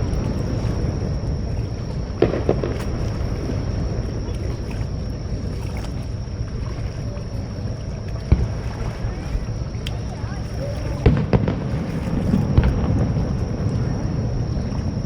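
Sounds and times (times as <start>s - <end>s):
waves washing at shoreline: 0.0s - 15.0s
wind: 0.0s - 15.0s
firework bangs: 2.2s - 3.1s, 11.0s - 13.2s.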